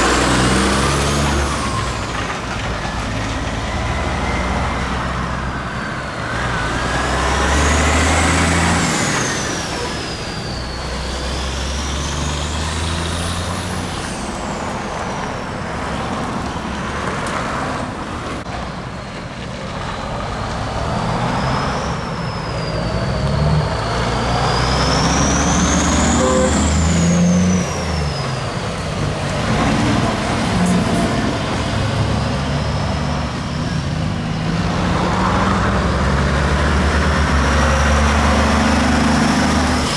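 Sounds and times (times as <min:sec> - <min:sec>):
truck diesel engines running: 0:00.0 - 0:39.9
high whistle: 0:21.5 - 0:28.5.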